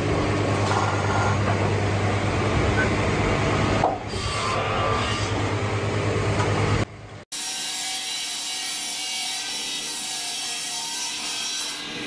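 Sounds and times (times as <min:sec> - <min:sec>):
saw cutting through timber: 0:07.3 - 0:12.0.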